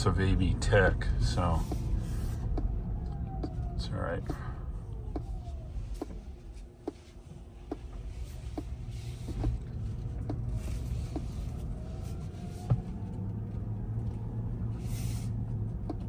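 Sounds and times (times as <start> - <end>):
low road rumble: 0.0 - 16.0.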